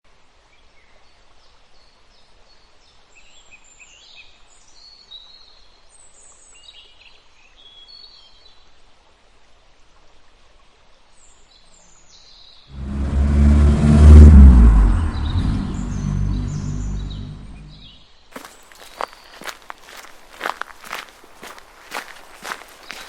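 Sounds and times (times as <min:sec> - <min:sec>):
small birds chirping and trilling: 0:18.4 - 0:23.0.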